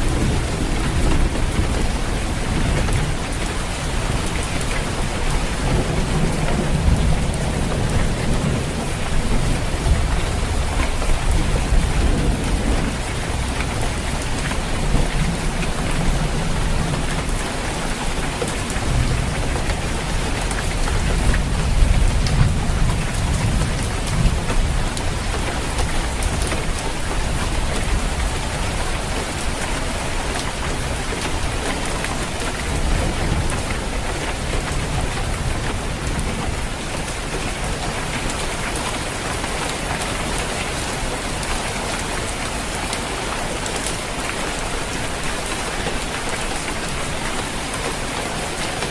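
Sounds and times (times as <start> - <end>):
thunder rumbling: 0.0 - 18.2
heavy rain on a roof: 0.0 - 48.9.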